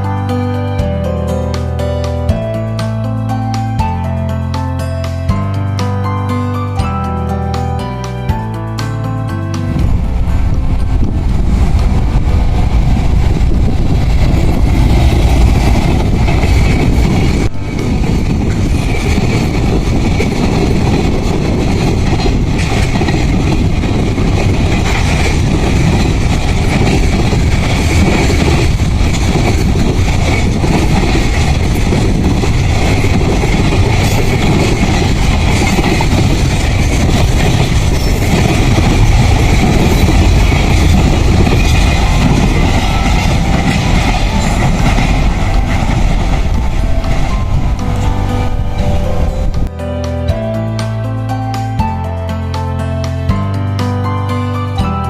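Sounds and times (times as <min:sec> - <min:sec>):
train wheels rumbling on rail: 0:08.3 - 0:49.7.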